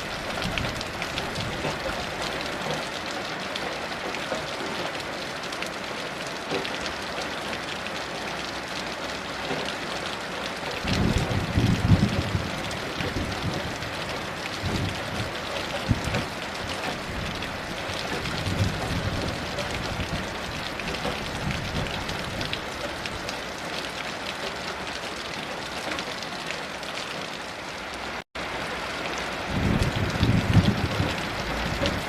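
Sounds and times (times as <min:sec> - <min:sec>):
heavy rain falling: 0:00.0 - 0:32.0
distant thunder rumbles: 0:10.8 - 0:23.2, 0:29.5 - 0:32.0.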